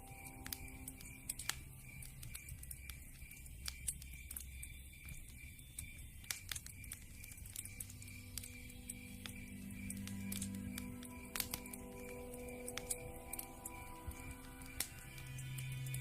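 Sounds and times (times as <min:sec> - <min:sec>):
burning logs crackling and popping: 0:00.0 - 0:16.0.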